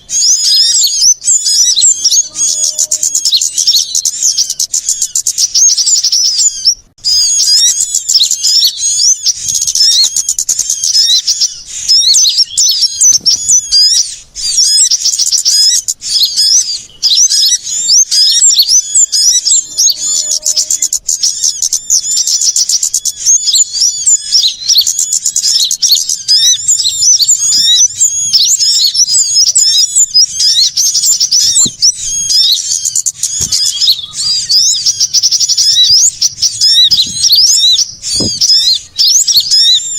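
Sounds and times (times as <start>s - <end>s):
small songbirds chirping: 0.0s - 39.9s.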